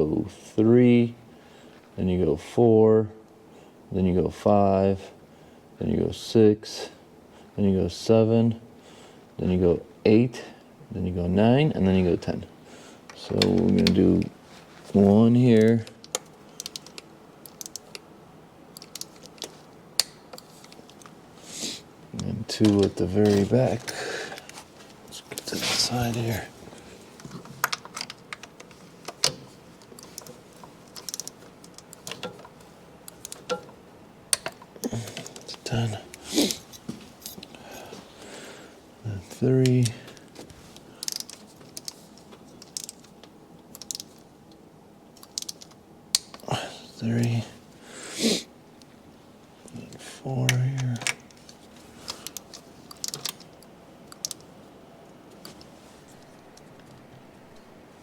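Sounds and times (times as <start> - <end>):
wrench clicking on bolts: 16.1 - 18.0, 30.0 - 32.5, 41.0 - 42.0, 42.6 - 43.1, 45.2 - 46.4, 52.2 - 53.4.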